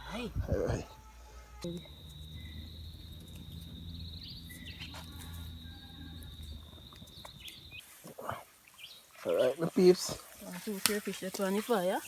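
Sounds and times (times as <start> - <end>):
insect trilling: 0.1 - 8.3
bird chirps: 1.6 - 7.9.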